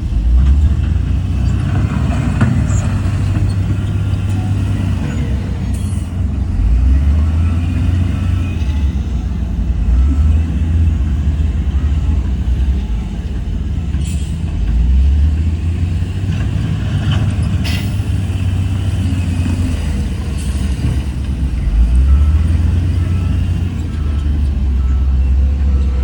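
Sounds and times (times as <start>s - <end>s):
heavy diesel engine rumble: 0.0s - 26.0s
sharp clanks: 13.9s - 14.8s.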